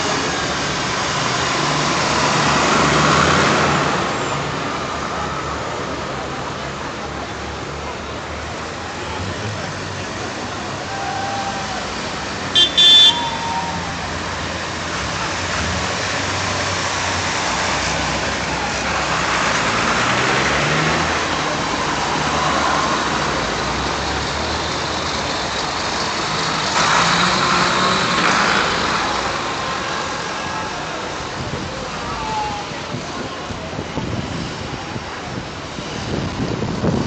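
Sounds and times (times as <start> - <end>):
tractor engines running: 0.0 - 37.0
vehicle horn: 12.5 - 13.6.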